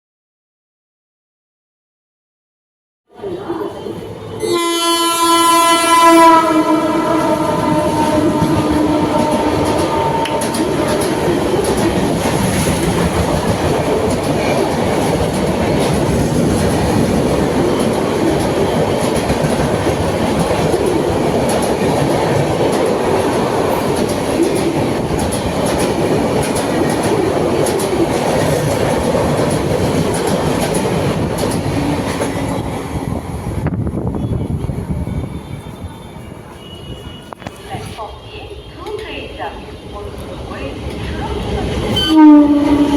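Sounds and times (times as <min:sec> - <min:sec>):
high-speed train passing: 0:03.1 - 0:42.9
wheels clicking over rail joints: 0:08.6 - 0:23.0, 0:23.8 - 0:32.6.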